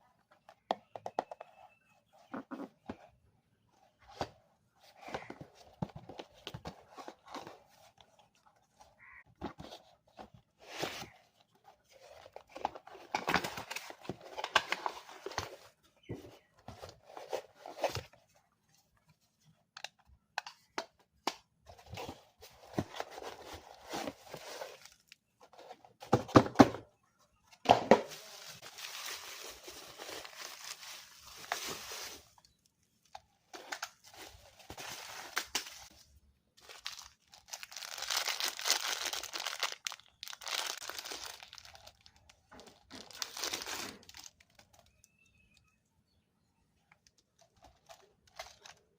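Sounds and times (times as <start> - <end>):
packaging tearing and crinkling: 36.6 - 42.2.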